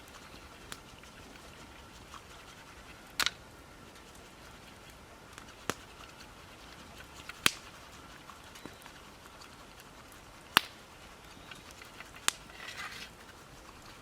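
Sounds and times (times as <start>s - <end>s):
wood campfire crackling: 0.0s - 14.0s
sharp fire pops: 3.2s - 3.4s, 7.4s - 7.6s, 10.6s - 10.8s.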